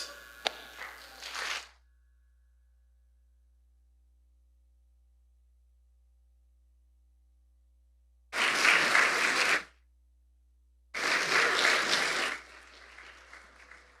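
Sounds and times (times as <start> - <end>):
congregation applauding: 8.4 - 9.7, 11.0 - 14.0.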